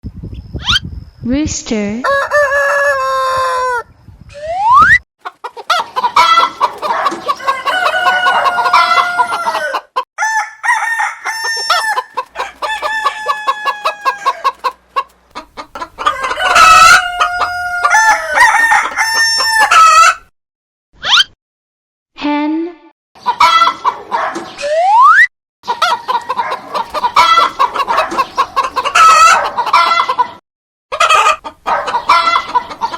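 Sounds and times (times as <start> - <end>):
rooster crowing: 2.0 - 3.9, 5.7 - 14.7, 16.0 - 20.2, 25.8 - 30.2, 30.9 - 32.6.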